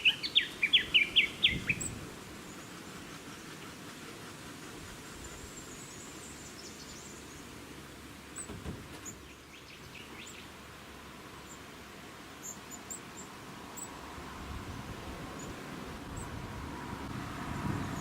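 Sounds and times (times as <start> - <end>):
birds chirping: 0.0 - 4.0, 5.2 - 11.7, 12.4 - 16.4
wind rumble: 0.8 - 2.6, 13.9 - 18.0
thump: 8.4 - 9.0.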